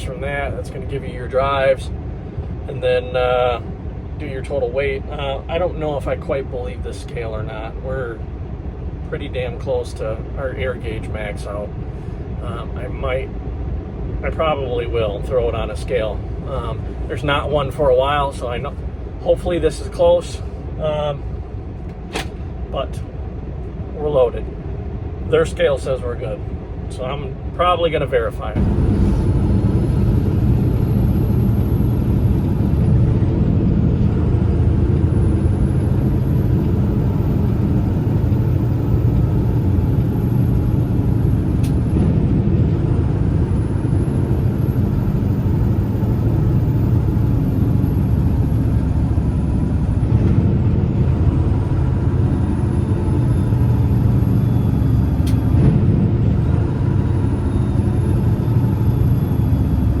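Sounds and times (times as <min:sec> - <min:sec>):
truck diesel engine running: 0:27.4 - 1:00.0.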